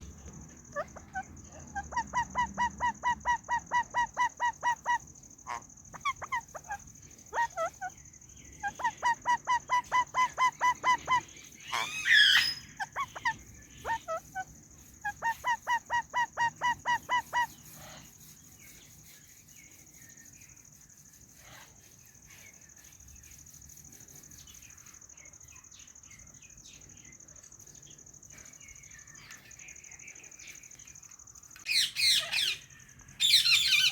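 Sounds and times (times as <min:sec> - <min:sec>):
parakeet sharp chirps: 0:08.6 - 0:18.0, 0:31.7 - 0:33.9
parakeet harsh screech: 0:11.6 - 0:13.0.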